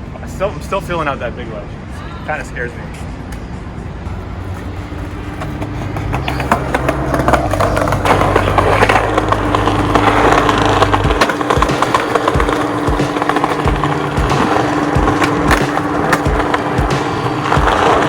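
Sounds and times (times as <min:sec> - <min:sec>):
skateboard wheels rolling on pavement: 0:04.0 - 0:18.0
skateboard deck clacks: 0:04.6 - 0:18.0.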